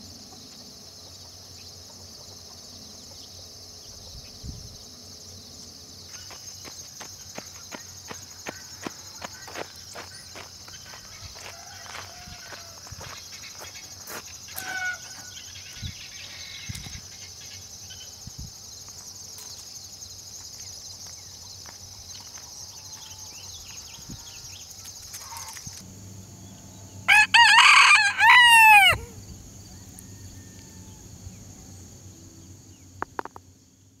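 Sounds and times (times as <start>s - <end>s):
rooster crowing: 11.0s - 13.2s, 14.6s - 15.4s, 27.0s - 31.8s.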